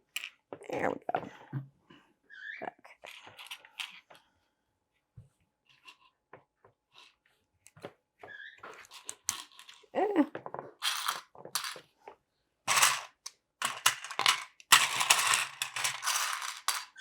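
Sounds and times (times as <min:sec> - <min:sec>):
plastic toy bricks clattering: 0:08.7 - 0:09.9, 0:10.7 - 0:11.9, 0:12.7 - 0:17.0.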